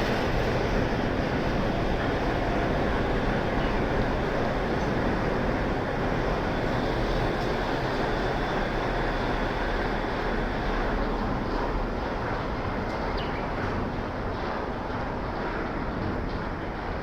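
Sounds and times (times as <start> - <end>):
monorail car rumbling: 0.0 - 17.0.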